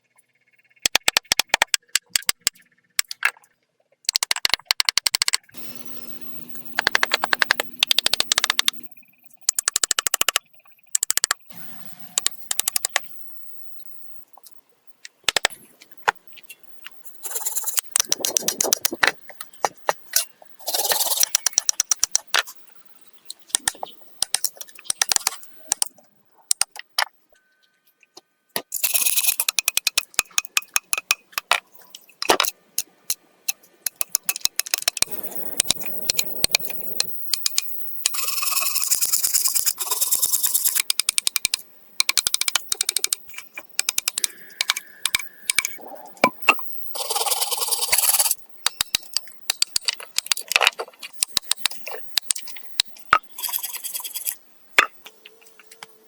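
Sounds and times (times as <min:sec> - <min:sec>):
objects clicking and rattling: 0:28.6 - 0:55.9.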